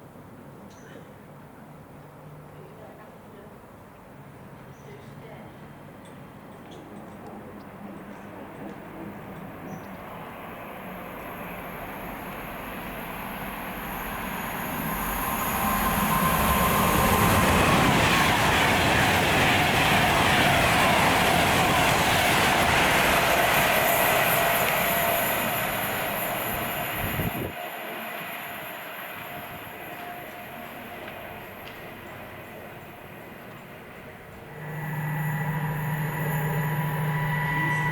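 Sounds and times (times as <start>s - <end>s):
train wheels rumbling on rails: 5.5s - 37.9s
steady tone: 34.4s - 37.9s.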